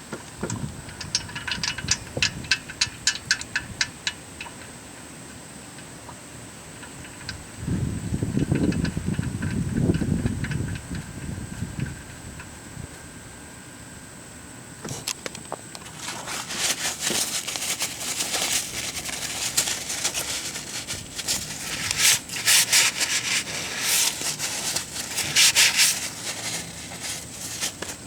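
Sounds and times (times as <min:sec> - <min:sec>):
rubbing and scraping strokes: 0:15.9 - 0:28.0.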